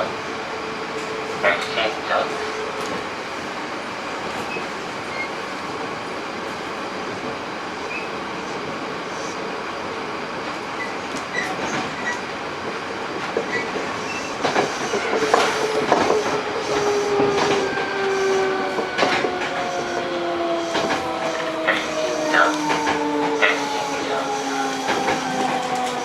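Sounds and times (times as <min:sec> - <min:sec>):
train wheels rolling on rails: 0:00.0 - 0:26.0
clacks over rail joints: 0:10.5 - 0:24.1, 0:24.7 - 0:26.0.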